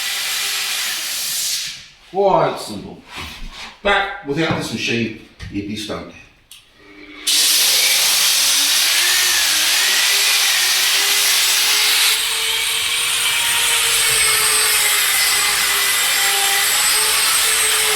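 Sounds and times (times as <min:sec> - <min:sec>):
floor sander grinding wood: 0:06.8 - 0:17.9.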